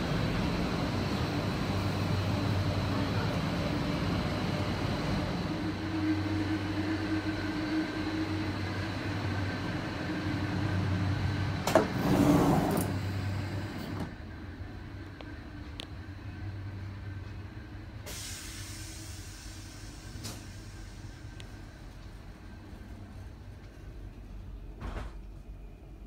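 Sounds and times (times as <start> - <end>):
train equipment humming: 0.0 - 26.0
sliding door click and hiss: 11.6 - 14.2, 20.2 - 20.6.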